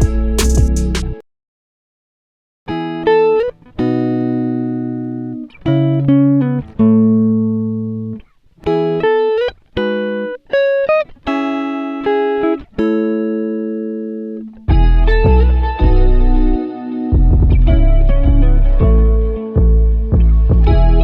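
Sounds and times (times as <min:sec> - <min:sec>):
plucked guitar music: 0:00.0 - 0:01.2, 0:02.7 - 0:21.0.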